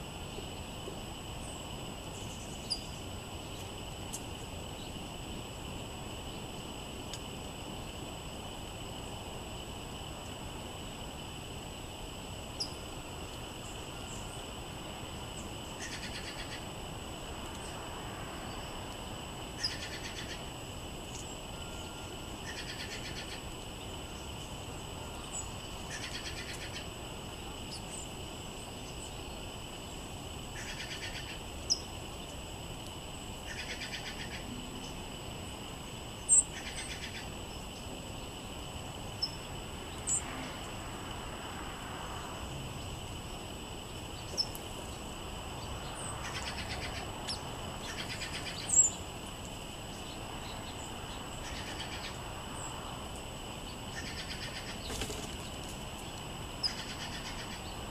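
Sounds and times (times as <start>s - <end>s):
buzzy bird trill: 1.4s - 3.6s, 15.4s - 16.7s, 19.6s - 20.5s, 21.1s - 26.9s, 33.4s - 35.0s, 45.6s - 49.1s, 49.9s - 52.8s, 53.7s - 57.9s.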